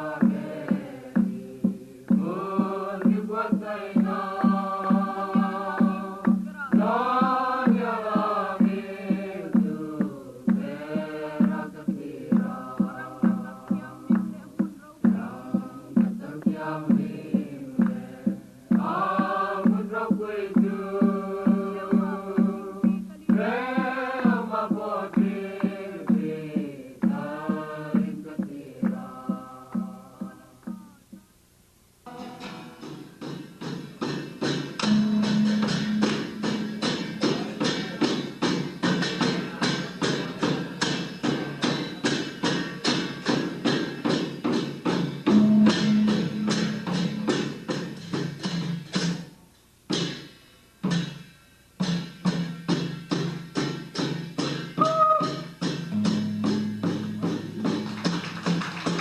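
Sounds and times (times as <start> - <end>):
choir singing: 0.0 - 30.7
steady beat: 0.0 - 31.4, 32.0 - 49.4, 51.9 - 59.0.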